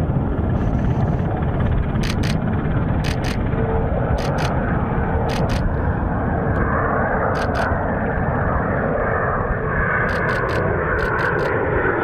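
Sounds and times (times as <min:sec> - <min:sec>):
jet engine roar: 0:00.0 - 0:12.0
sharp clicks: 0:02.0 - 0:02.4, 0:03.0 - 0:03.4, 0:04.2 - 0:04.5, 0:05.3 - 0:05.7, 0:07.4 - 0:07.7, 0:10.1 - 0:11.6.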